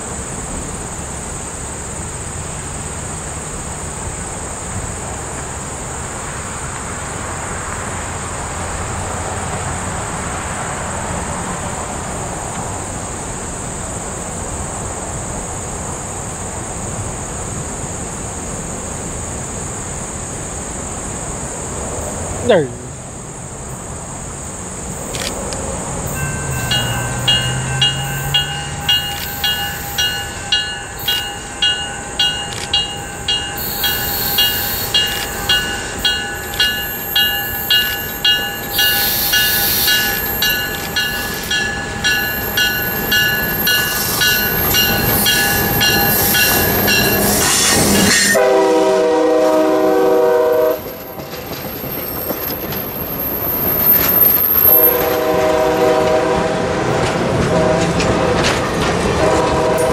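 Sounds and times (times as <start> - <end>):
train passing: 0.0 - 59.9
bell ringing: 26.1 - 48.3
train air horn blasts: 43.4 - 51.1, 54.8 - 58.4, 59.2 - 59.9.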